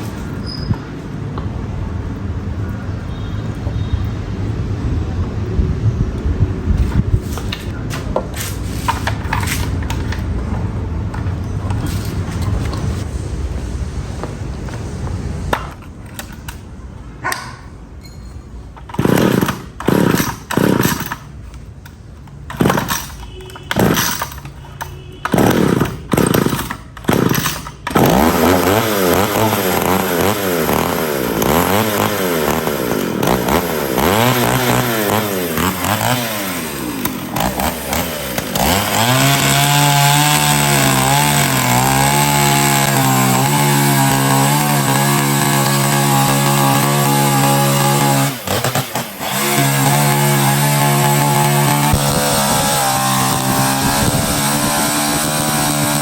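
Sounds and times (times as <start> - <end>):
chainsaw engine revving: 18.9 - 21.3, 22.4 - 24.5, 25.2 - 56.0.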